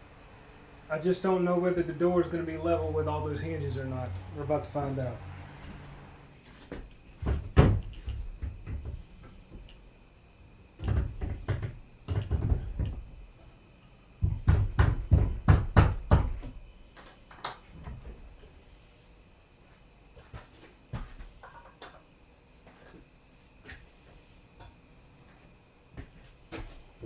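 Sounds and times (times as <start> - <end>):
knocks and thumps on wooden door: 6.8 - 9.6, 10.8 - 13.2, 14.2 - 16.6.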